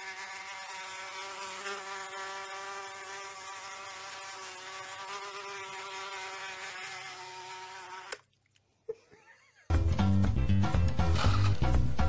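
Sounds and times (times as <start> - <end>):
fly buzzing from phone speaker: 0.0 - 8.2.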